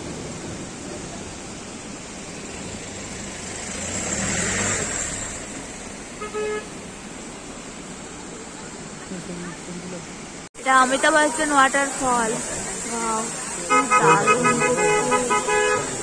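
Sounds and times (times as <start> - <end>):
vehicle passing: 2.4 - 6.1, 10.9 - 16.0
car horn toot: 6.2 - 6.7, 13.6 - 16.0.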